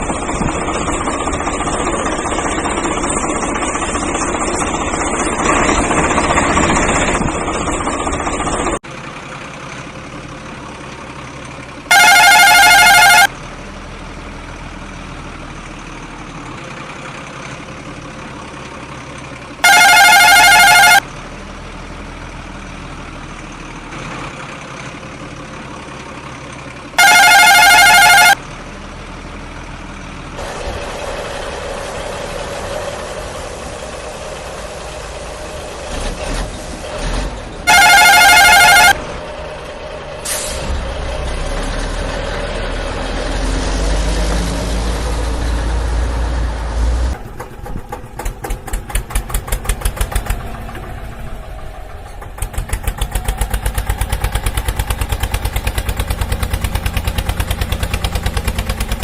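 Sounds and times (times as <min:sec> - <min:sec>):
toy engine drone: 0:11.9 - 0:13.3, 0:19.6 - 0:21.0, 0:27.0 - 0:28.4, 0:37.7 - 0:39.0
warbling electronic horn: 0:11.9 - 0:13.3, 0:19.6 - 0:21.0, 0:27.0 - 0:28.4, 0:37.6 - 0:39.0.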